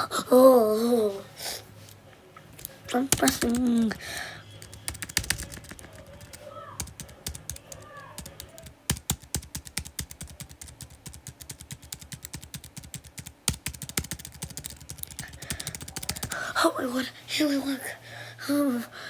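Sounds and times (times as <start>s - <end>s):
button clicking rapidly: 3.1s - 3.9s, 4.6s - 16.4s.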